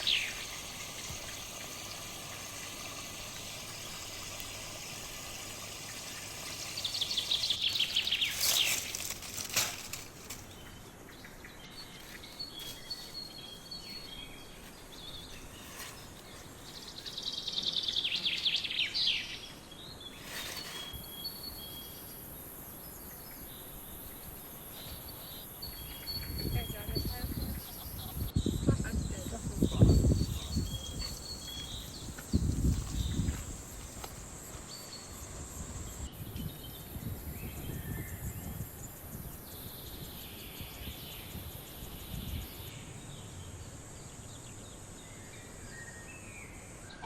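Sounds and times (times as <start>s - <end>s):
songbird trilling: 0.0s - 2.7s
outdoor background noise: 0.0s - 47.0s.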